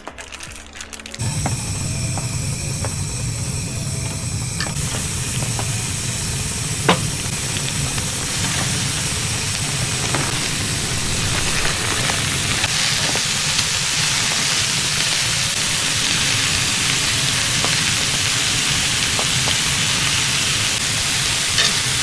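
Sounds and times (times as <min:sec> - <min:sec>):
utensil tap: 0:01.2 - 0:13.2
food sizzling in a pan: 0:01.2 - 0:22.0.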